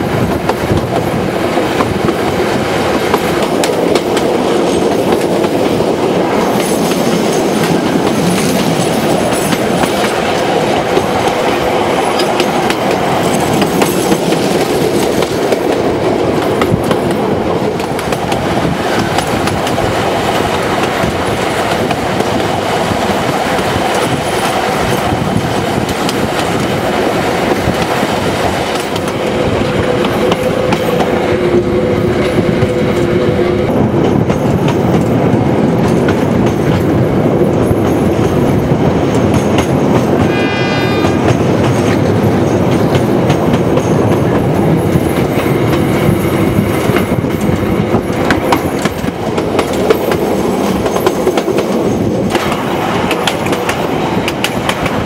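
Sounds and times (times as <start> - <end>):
train rumbling on track: 0.0 - 55.0
brief high-pitched tone: 40.2 - 42.0.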